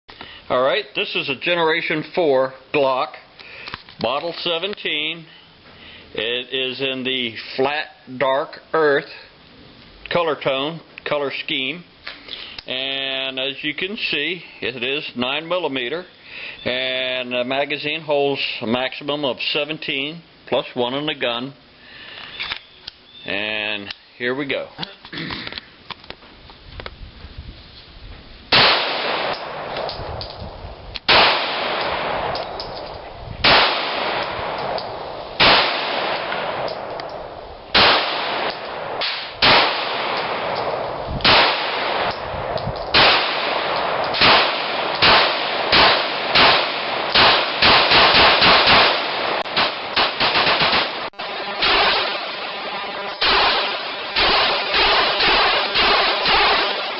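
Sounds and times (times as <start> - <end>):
pistol shots echoing: 28.5 - 30.0, 31.1 - 32.8, 33.4 - 42.3, 42.9 - 56.9.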